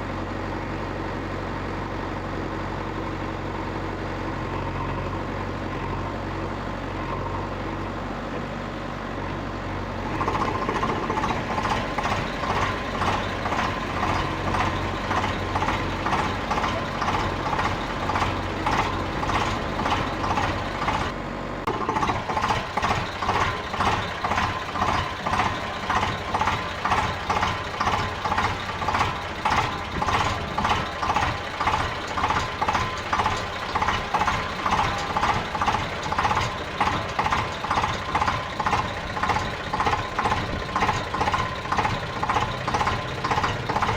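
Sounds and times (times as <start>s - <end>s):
vehicle engine running: 0.0s - 43.9s.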